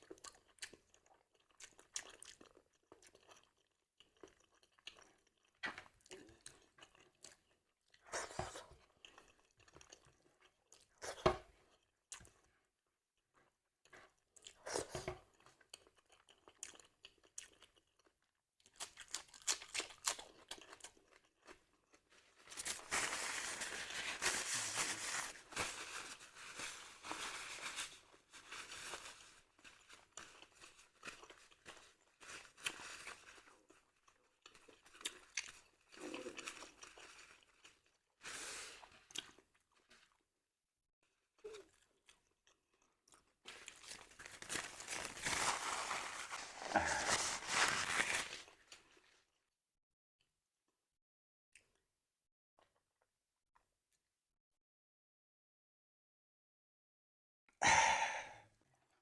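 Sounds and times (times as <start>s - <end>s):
person chewing crunchy food: 0.0s - 12.5s, 13.8s - 27.4s, 28.0s - 40.2s, 41.4s - 49.2s.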